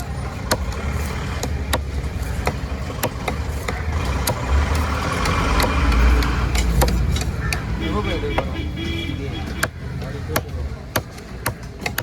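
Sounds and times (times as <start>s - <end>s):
knife chopping fish: 0.0s - 7.7s, 9.6s - 12.0s
low engine rumble: 0.0s - 11.8s.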